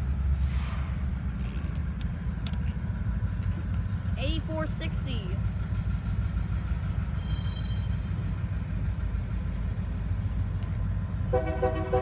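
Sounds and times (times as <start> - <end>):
diesel locomotive rumbling: 0.0 - 12.0.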